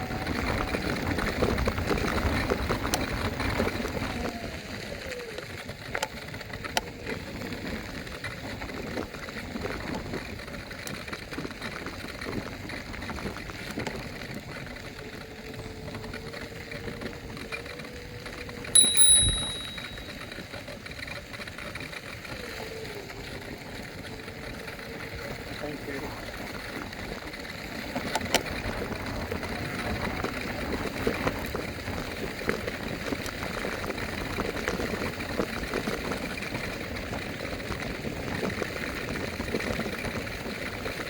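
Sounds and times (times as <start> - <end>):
electric scooter motor whine: 0.0 - 8.8, 13.1 - 18.7, 21.2 - 33.6
bell ding: 18.8 - 20.3.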